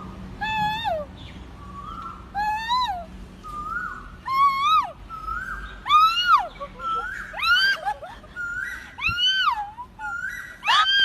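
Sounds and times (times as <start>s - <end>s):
bird calls: 0.6s - 11.0s
girl making whooping bird calls: 2.3s - 11.0s.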